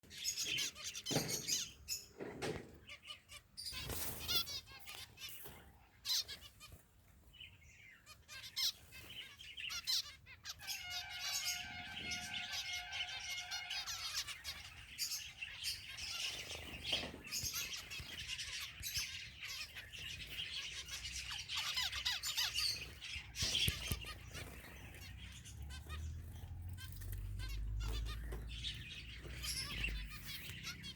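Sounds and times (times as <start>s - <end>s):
finches chirping: 2.9s - 30.9s.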